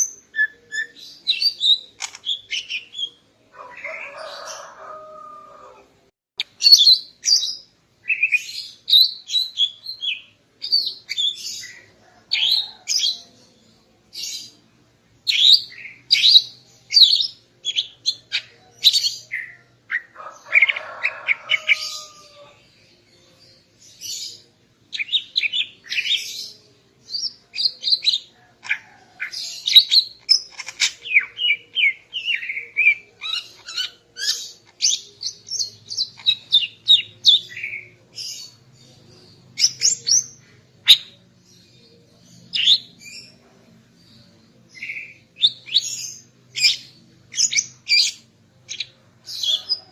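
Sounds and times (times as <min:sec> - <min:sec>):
bird chirping: 0:00.0 - 0:05.7, 0:06.4 - 0:49.9.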